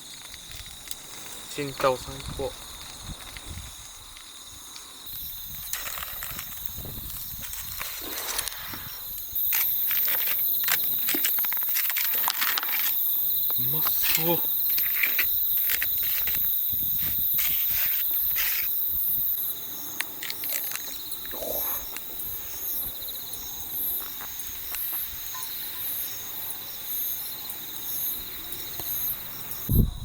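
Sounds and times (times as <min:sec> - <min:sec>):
insect steady high trill: 0:00.0 - 0:30.0
pulsing insect call: 0:00.0 - 0:30.0
loud hiss: 0:04.8 - 0:10.6, 0:13.6 - 0:19.3.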